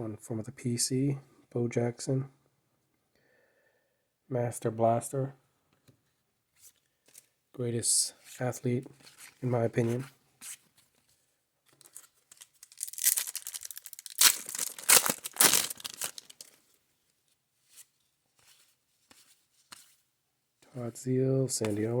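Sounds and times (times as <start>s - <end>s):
wrapper rustling and tearing: 11.7s - 16.6s.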